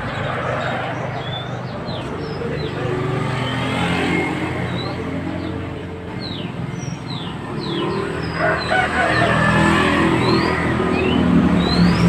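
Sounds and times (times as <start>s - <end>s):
rooster crowing: 8.2s - 10.2s.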